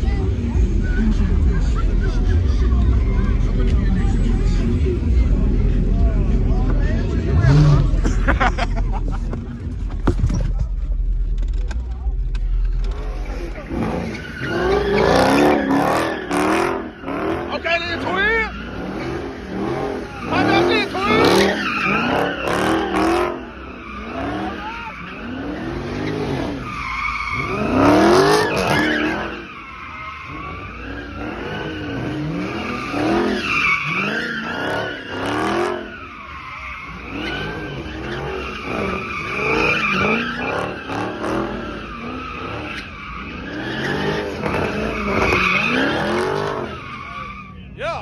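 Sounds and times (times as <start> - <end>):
car engine revving: 0.0 - 47.8
tyres squealing: 13.1 - 47.7.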